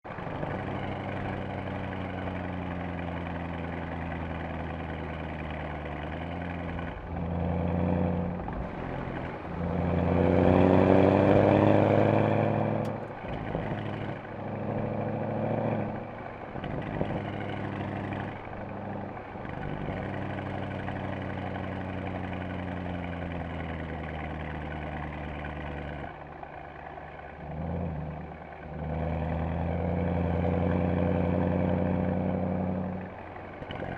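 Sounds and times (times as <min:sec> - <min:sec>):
car engine accelerating: 0:00.0 - 0:33.9.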